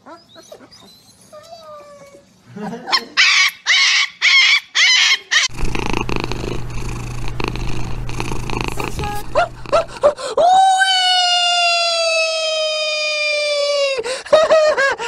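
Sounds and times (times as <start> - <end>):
puppy yelping: 0.0 - 2.2, 3.0 - 10.3
kitten purring: 5.5 - 10.2.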